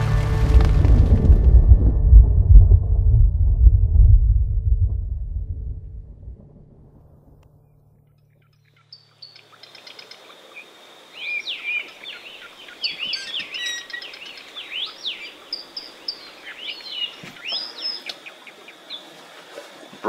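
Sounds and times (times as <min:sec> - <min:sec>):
birds chirping and singing: 0:08.2 - 0:19.2.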